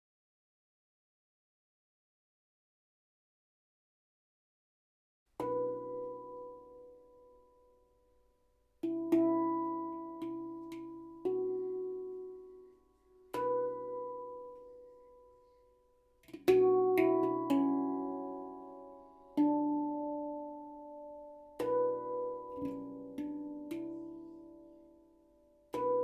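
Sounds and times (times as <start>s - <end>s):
handpan slow melody: 5.4s - 26.0s.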